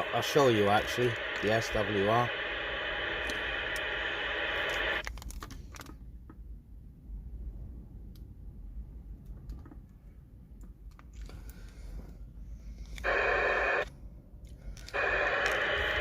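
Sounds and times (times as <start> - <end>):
radio speaker hiss bursts: 0.0 - 5.0, 12.8 - 13.9, 14.8 - 16.0.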